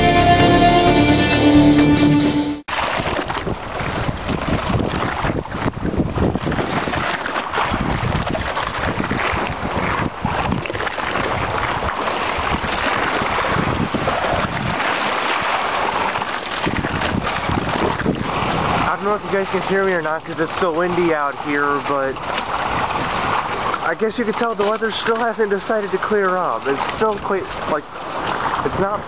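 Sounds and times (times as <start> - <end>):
wind buffeting microphone: 2.8 - 25.4.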